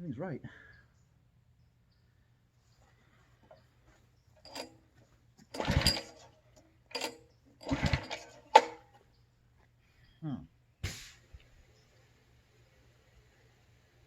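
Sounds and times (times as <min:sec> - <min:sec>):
engine turning over without firing: 0:04.4 - 0:04.8, 0:05.4 - 0:09.0
recoil starter cord pulled: 0:04.4 - 0:04.8, 0:05.4 - 0:09.0.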